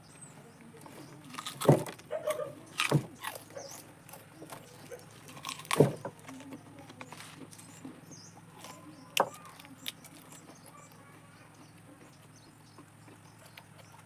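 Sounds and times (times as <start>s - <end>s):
sharp crunch: 0.8s - 11.0s
person chewing: 1.2s - 14.0s.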